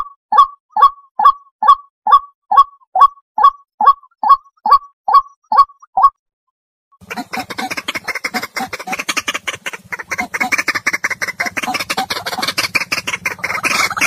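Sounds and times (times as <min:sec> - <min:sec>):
waterhen harsh croaking calls: 0:07.0 - 0:14.0.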